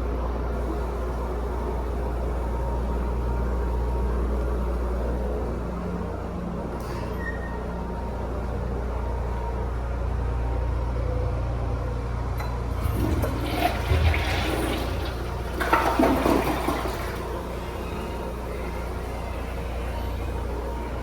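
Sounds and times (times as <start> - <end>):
steady low hum: 0.0 - 21.0
toilet flushing: 12.4 - 21.0.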